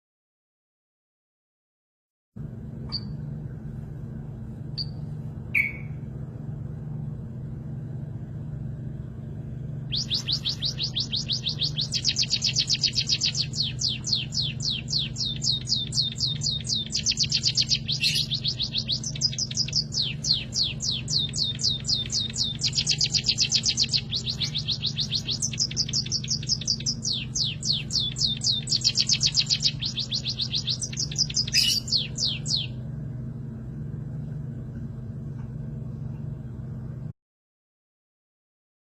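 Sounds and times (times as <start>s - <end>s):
steady low hum: 2.4s - 37.2s
finch chirps: 2.9s - 3.2s, 4.8s - 6.0s, 9.9s - 32.8s
finch trilling: 4.8s - 6.0s, 9.9s - 32.8s.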